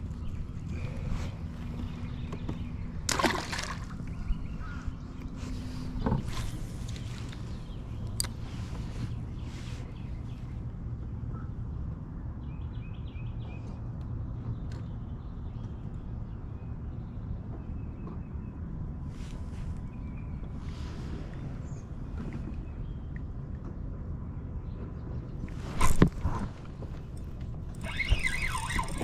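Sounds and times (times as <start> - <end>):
water sloshing against hull: 0.0 - 10.4, 25.4 - 29.0
water splashes: 3.1 - 4.2.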